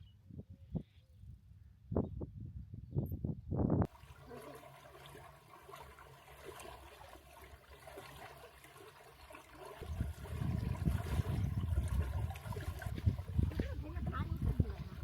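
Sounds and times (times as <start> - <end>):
water trickling and splashing: 3.9 - 15.0.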